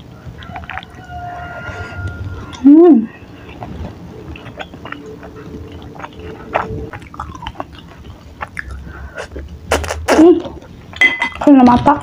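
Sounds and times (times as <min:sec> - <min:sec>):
mouth smacks and clicks: 0:00.0 - 0:01.1, 0:03.3 - 0:10.3
person chewing: 0:00.0 - 0:11.5.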